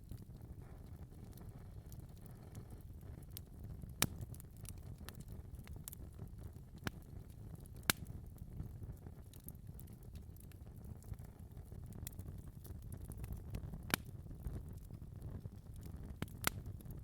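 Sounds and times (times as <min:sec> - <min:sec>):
fire ticking and popping: 0:00.0 - 0:17.0
low rumble of flames: 0:00.0 - 0:17.0.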